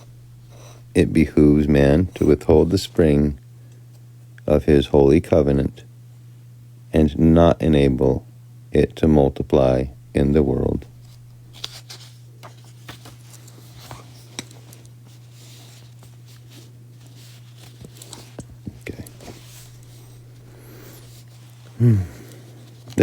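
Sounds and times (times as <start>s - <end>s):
low electrical hum: 0.0s - 23.0s
faint handling clicks and rustles: 10.9s - 23.0s.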